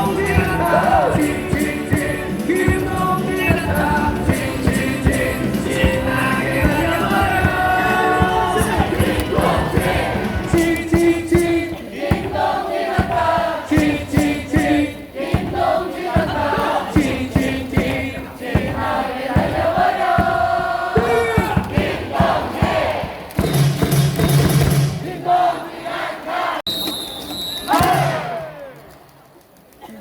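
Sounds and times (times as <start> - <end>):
amplified music: 0.0 - 10.6
crowd chanting and singing: 0.0 - 23.4, 24.7 - 26.7, 27.7 - 28.8
rhythmic clapping: 0.0 - 24.8.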